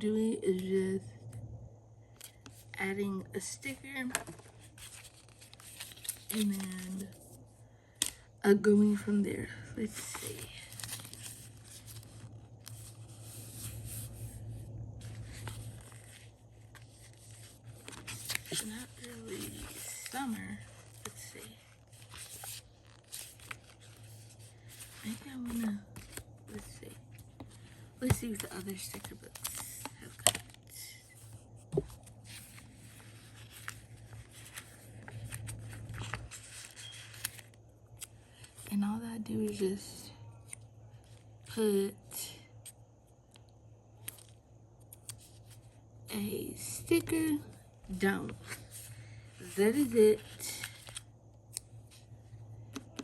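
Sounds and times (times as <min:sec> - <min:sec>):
paper rustling and scraping: 0:04.1 - 0:07.3, 0:09.8 - 0:37.5, 0:48.2 - 0:51.0
low hum: 0:06.0 - 0:37.4.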